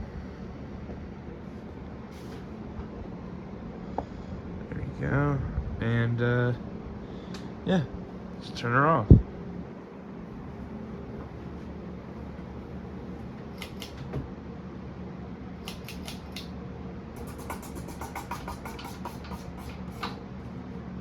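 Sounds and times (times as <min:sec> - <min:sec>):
low hum: 0:00.0 - 0:13.6
ceiling fan coasting down: 0:00.0 - 0:17.3.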